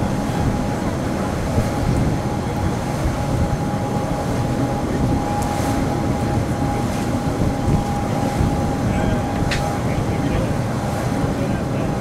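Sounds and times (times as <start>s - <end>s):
constant steady whine: 0.0s - 12.0s
train rumble inside carriage: 0.0s - 12.0s.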